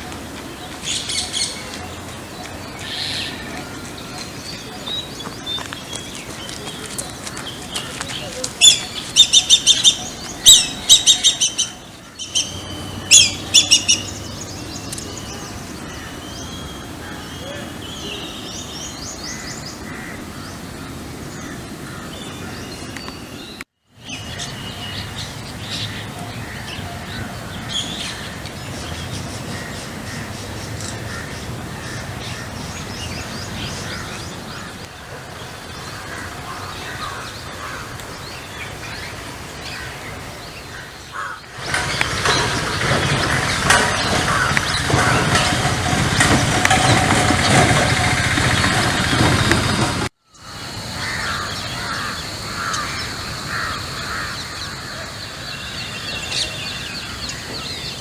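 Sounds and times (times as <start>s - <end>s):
birds calling: 0.0s - 58.0s
outdoor background noise: 0.0s - 58.0s
crows cawing: 19.3s - 20.5s, 35.9s - 38.0s, 40.7s - 41.5s, 44.2s - 45.2s, 50.4s - 55.0s.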